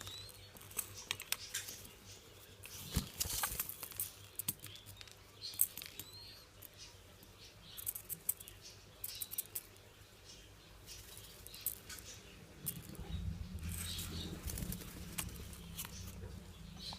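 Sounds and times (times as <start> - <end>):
low rumble: 12.5 - 16.9.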